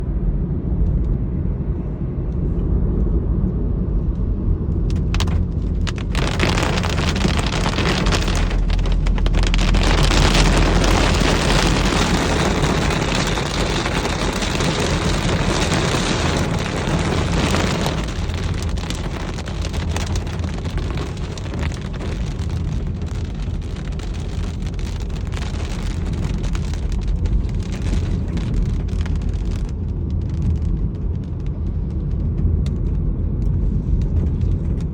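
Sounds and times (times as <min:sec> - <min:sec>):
vehicle rumble: 0:00.0 - 0:34.9
rain and wet road hiss: 0:04.9 - 0:32.0.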